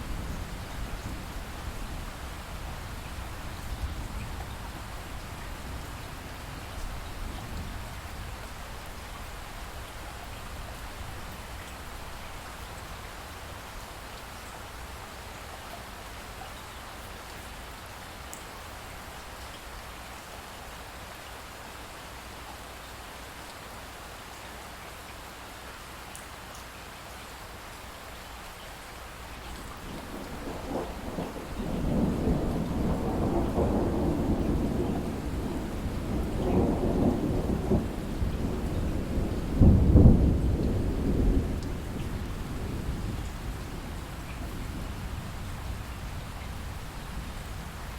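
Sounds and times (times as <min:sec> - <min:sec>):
light rain with drips: 0:00.0 - 0:47.9
distant rolling thunder: 0:29.7 - 0:47.9.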